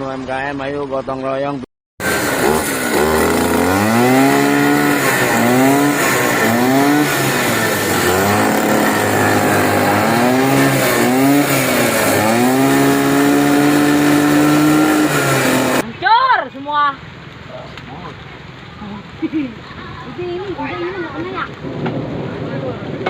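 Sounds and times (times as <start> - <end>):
small petrol engine revving: 2.0 - 15.8.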